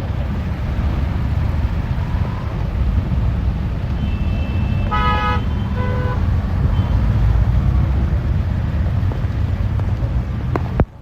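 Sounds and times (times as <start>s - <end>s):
bus rumbling on road: 0.0s - 11.0s
road traffic: 0.0s - 11.0s
vehicle horn honking: 3.9s - 7.0s.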